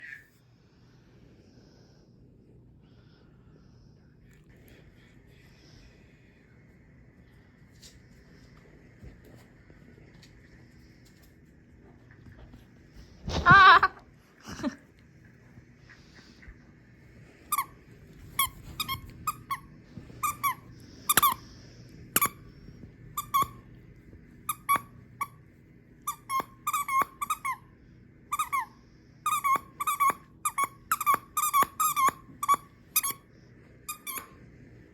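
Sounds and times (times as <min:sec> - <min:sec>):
squeaky dog toy squeaking: 0:23.2 - 0:23.6, 0:26.1 - 0:27.6, 0:29.3 - 0:33.2.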